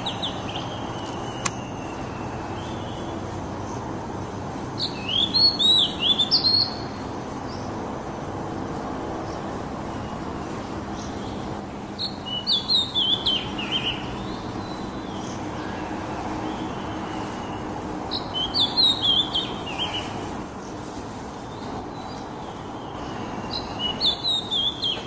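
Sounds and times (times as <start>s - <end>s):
bird singing whistled notes: 0.0s - 3.3s, 4.8s - 7.7s, 12.0s - 15.8s, 16.5s - 20.2s, 22.8s - 25.0s.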